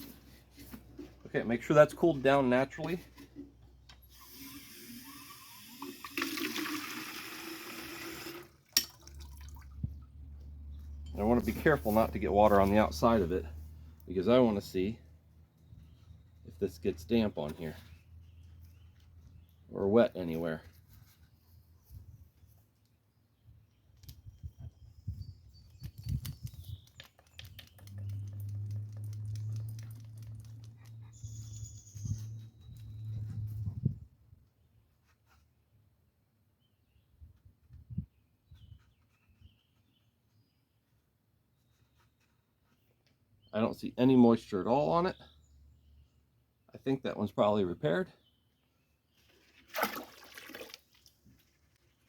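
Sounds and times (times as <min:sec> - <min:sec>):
water running from a tap: 0:04.9 - 0:09.5.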